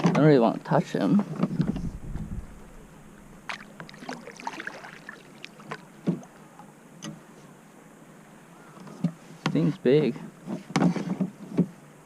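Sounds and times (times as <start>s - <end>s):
small water splashes: 3.1s - 6.7s.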